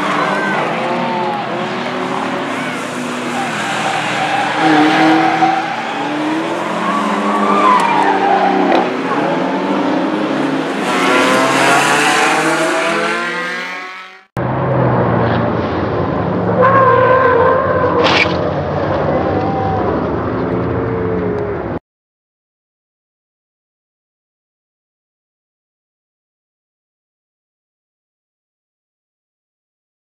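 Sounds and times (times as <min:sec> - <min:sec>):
tires squealing: 0:00.0 - 0:14.2, 0:16.3 - 0:21.8
car engines revving: 0:00.0 - 0:21.8.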